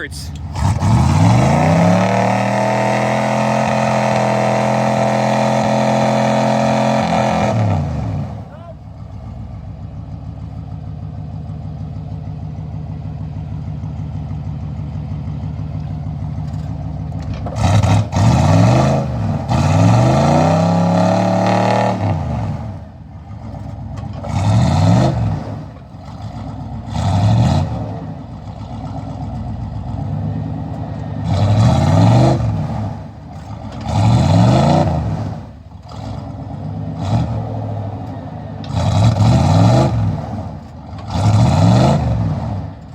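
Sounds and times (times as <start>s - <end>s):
vehicle engine idling: 0.0s - 1.8s, 8.2s - 17.7s, 22.4s - 24.4s, 25.5s - 27.0s, 27.8s - 31.3s, 32.7s - 34.0s, 35.1s - 38.8s
engine revving: 0.0s - 8.8s, 16.5s - 42.9s.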